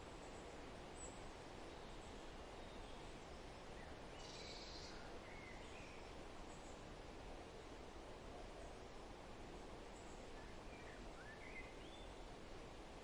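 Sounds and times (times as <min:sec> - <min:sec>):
background hiss: 0:00.0 - 0:13.0
faint bird chirps: 0:00.2 - 0:06.8, 0:09.9 - 0:12.4.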